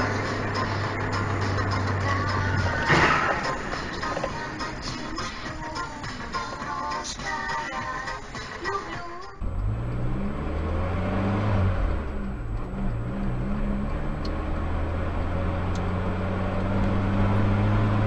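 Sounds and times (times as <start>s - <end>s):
vehicle engine droning: 0.0s - 6.5s, 9.4s - 18.0s
music with singing: 0.0s - 9.4s.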